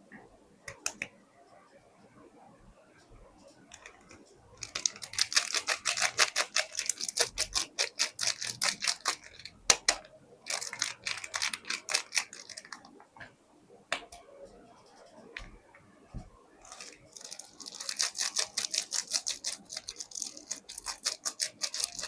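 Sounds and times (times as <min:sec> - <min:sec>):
packaging crackling: 0:03.7 - 0:13.0, 0:16.6 - 0:22.0.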